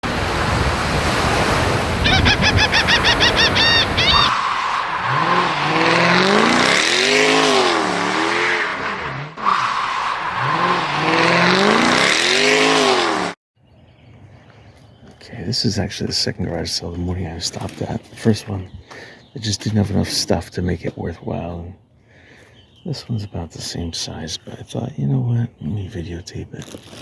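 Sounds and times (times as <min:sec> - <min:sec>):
tyres squealing: 0:02.0 - 0:04.4
car engine: 0:03.2 - 0:13.4.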